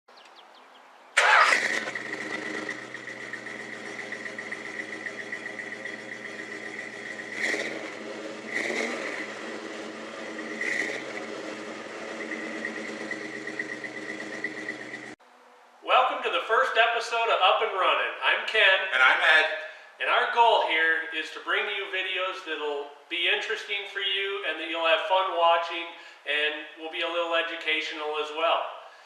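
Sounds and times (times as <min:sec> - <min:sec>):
car engine starting and idling: 0:01.2 - 0:15.2.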